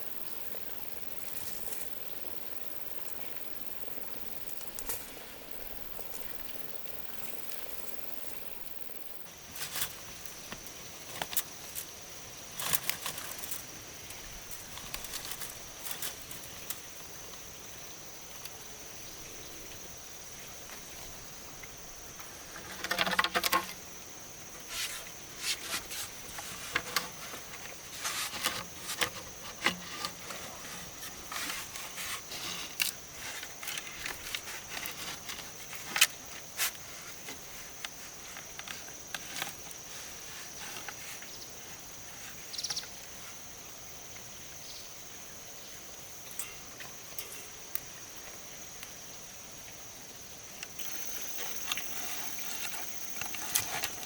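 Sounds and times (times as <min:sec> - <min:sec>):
high-pitched insect drone: 0:50.8 - 0:54.0.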